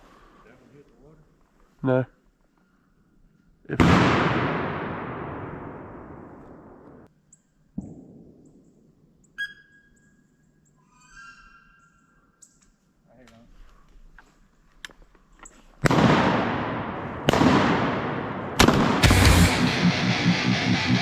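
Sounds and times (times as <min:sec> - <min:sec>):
shotgun shot echoing: 0:03.8 - 0:07.0, 0:15.8 - 0:19.8
high thin whistled calls: 0:09.2 - 0:12.6.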